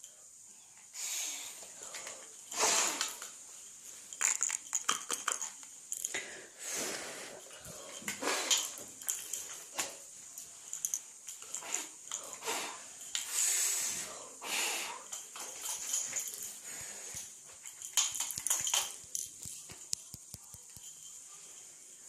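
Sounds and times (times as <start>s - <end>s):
child blowing breathy puffs: 2.5s - 3.2s, 11.6s - 15.1s.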